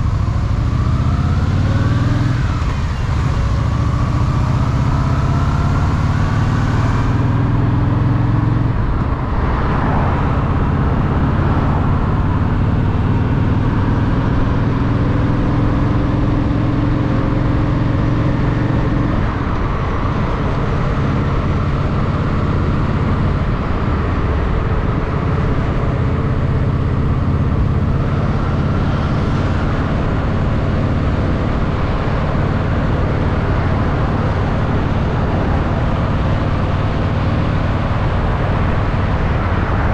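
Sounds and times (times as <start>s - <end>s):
motorcycle engine running: 0.0s - 9.3s, 9.9s - 39.9s
wind rush: 8.6s - 14.8s, 18.2s - 39.9s.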